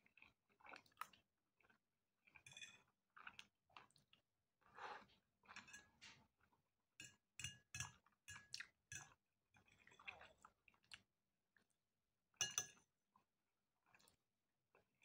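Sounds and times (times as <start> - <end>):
fork clinking on plate: 12.4 - 12.8.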